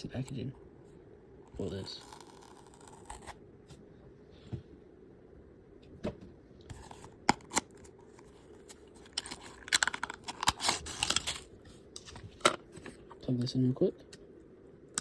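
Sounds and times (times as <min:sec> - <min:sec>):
packaging rustling: 0:06.7 - 0:12.2.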